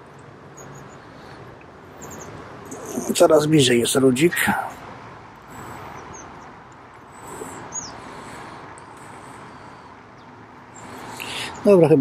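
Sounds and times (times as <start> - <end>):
outdoor background noise: 0.0 - 12.0
high bird chirps: 1.9 - 3.1, 5.7 - 6.6, 7.2 - 8.0.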